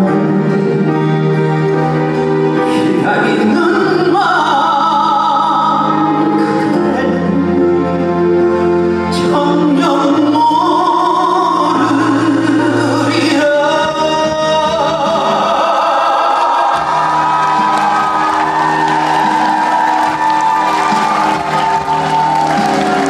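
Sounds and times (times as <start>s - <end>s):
man singing ballad: 0.0s - 1.5s, 2.5s - 17.7s
live band playing: 16.7s - 23.0s.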